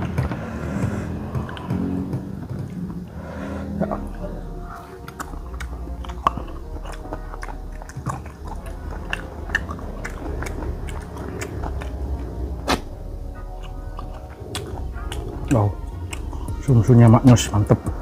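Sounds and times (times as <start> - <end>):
person chewing with mouth smacks: 3.8 - 16.6.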